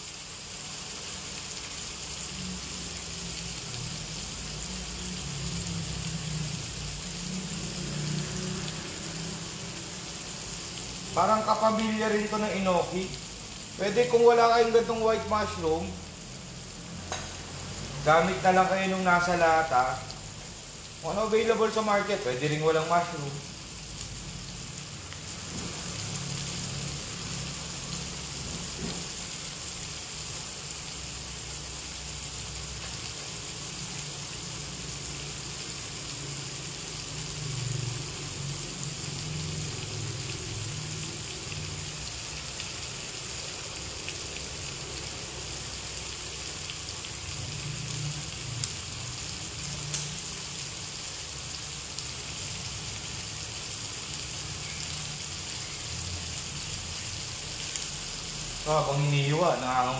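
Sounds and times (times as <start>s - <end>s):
chicken sizzling in skillet: 0.0s - 59.9s.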